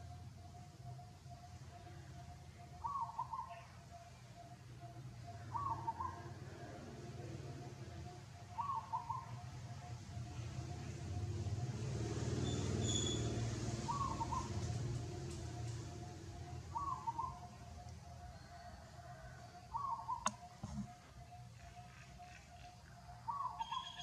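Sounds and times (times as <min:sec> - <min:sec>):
faint steady hum: 0:00.0 - 0:12.1, 0:13.4 - 0:24.0
bird warbling call: 0:02.8 - 0:03.9, 0:05.3 - 0:06.3, 0:08.5 - 0:09.4, 0:13.9 - 0:14.6, 0:16.4 - 0:17.8, 0:19.7 - 0:24.0.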